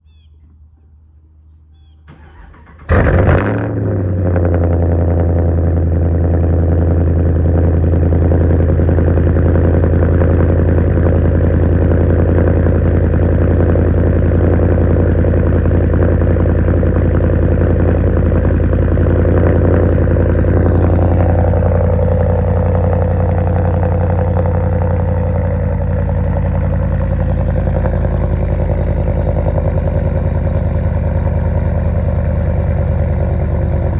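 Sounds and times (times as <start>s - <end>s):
engine cranking: 2.1s - 3.8s
engine starting and idling loudly: 2.1s - 33.9s.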